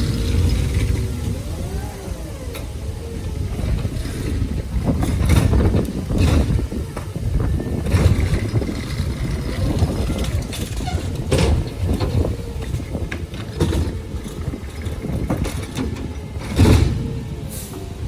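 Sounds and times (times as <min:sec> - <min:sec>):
garbage truck engine rumbling: 0:00.0 - 0:18.0
sharp bangs and clanks: 0:03.6 - 0:17.9.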